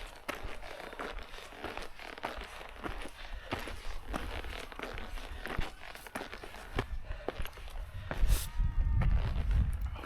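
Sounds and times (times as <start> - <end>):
footsteps on rocky path: 0.0 - 10.0
wind buffeting microphone: 6.7 - 10.0.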